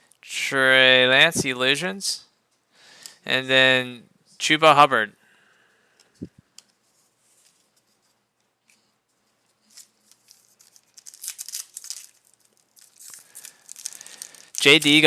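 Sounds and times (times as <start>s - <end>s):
plastic wrapper crinkling and tearing: 9.7s - 15.0s.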